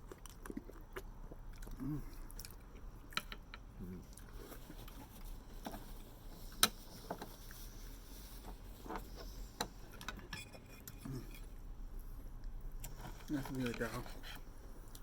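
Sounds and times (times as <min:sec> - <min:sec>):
small eating clicks: 0:00.0 - 0:04.4
person chewing food: 0:00.0 - 0:13.1.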